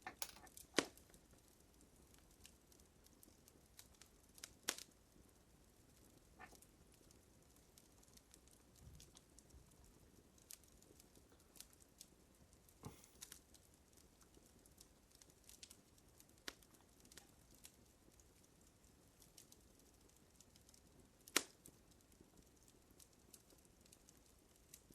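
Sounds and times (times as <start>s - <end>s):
faint fire crackling: 0.0s - 24.9s.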